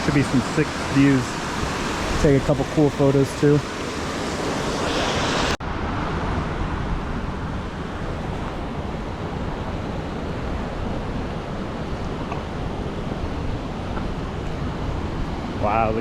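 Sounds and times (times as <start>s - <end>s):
waterfall rushing: 0.0s - 5.6s.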